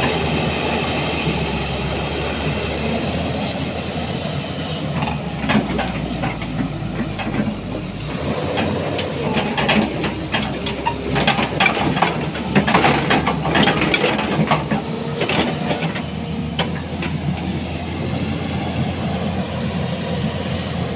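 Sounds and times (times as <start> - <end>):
excavator diesel engine running: 0.0 - 20.9
metal on rock clanks and scrapes: 5.0 - 16.9.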